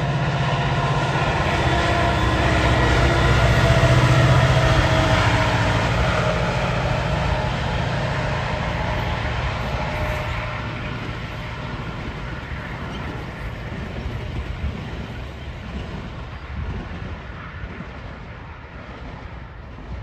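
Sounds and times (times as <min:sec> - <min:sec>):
diesel engine hum: 0:00.0 - 0:14.8
train passing on track: 0:00.0 - 0:20.0.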